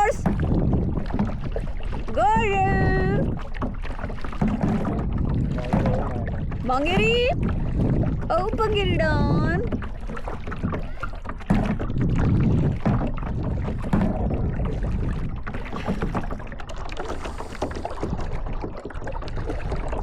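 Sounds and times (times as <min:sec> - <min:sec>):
kayak knocks and clatter: 0:00.0 - 0:20.0
water splashing: 0:00.0 - 0:20.0
steady low rumble: 0:04.8 - 0:09.9.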